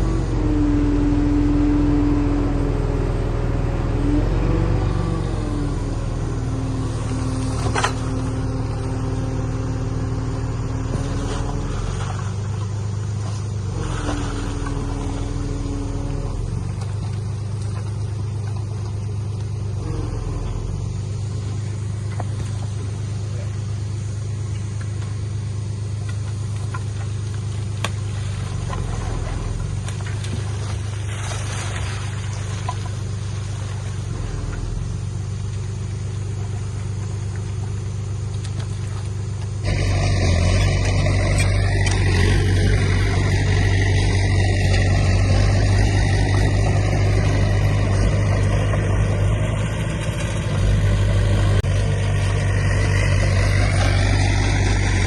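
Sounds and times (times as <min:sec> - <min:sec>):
heavy diesel engine running: 0:00.0 - 0:55.0
high machine whine: 0:00.0 - 0:55.0.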